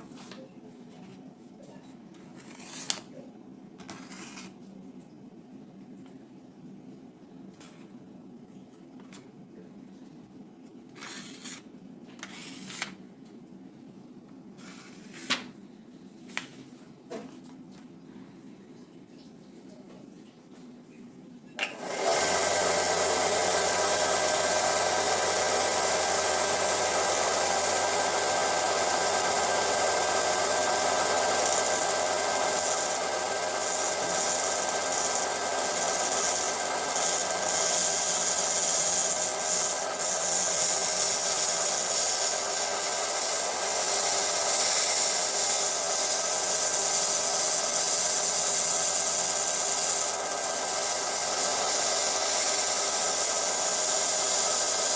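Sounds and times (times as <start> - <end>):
belt sander humming: 21.7 - 54.9
wood rasping against abrasive: 28.0 - 54.9.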